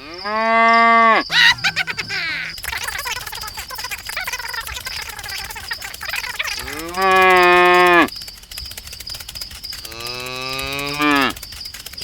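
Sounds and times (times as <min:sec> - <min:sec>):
cow mooing: 0:00.0 - 0:02.8, 0:06.7 - 0:08.1
high insect-like chirring: 0:00.0 - 0:12.0.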